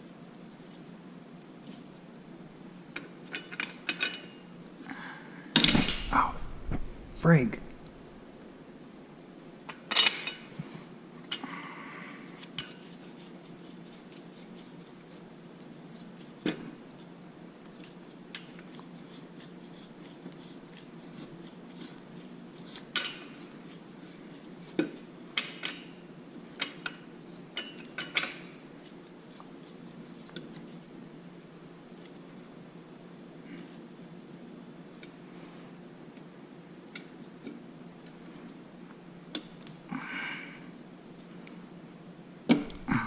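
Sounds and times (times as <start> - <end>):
metal tools clanking: 5.6 - 6.4
low hum: 5.7 - 8.8.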